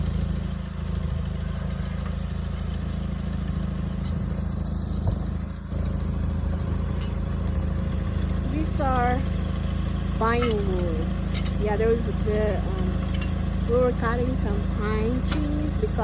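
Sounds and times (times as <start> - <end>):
lift truck engine rumbling: 0.0 - 16.0.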